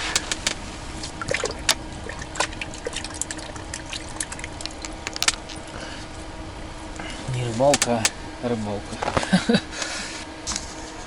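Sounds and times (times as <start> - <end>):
water dripping and trickling: 1.2 - 5.3.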